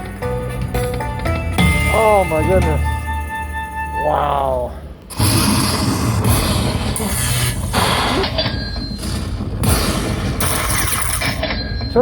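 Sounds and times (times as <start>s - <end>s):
slot machine music and effects: 0.0s - 4.3s.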